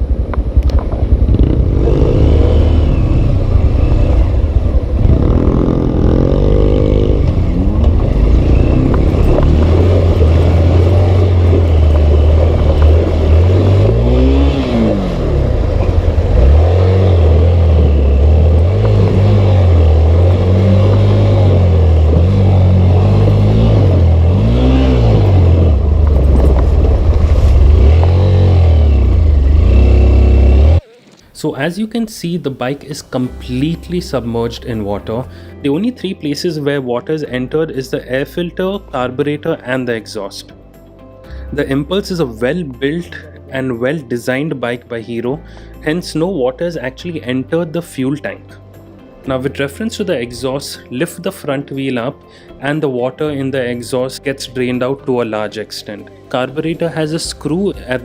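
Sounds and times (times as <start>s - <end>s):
dirt bike engine revving: 1.1s - 31.0s.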